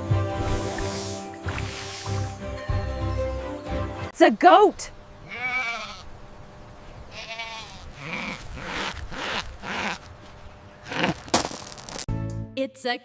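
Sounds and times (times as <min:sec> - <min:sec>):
goat bleating: 0:05.2 - 0:06.1, 0:07.1 - 0:10.1.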